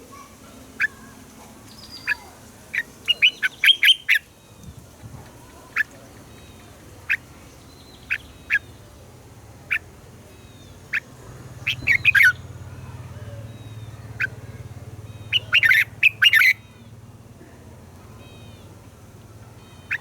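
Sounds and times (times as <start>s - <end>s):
bird giving sharp calls: 1.9s - 4.3s, 5.6s - 8.8s, 9.7s - 17.0s, 19.6s - 20.0s.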